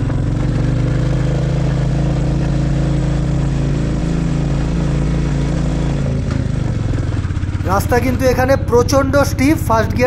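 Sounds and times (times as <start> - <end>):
motorcycle engine pulling uphill: 0.0 - 10.0.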